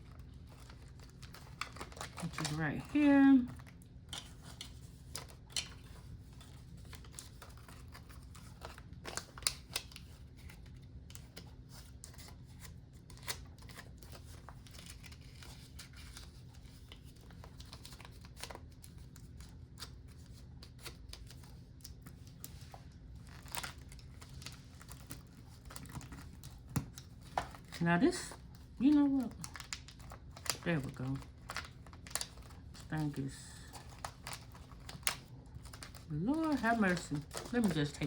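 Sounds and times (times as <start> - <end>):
faint steady hum: 0.0 - 38.0
paper money rustling: 0.1 - 38.0.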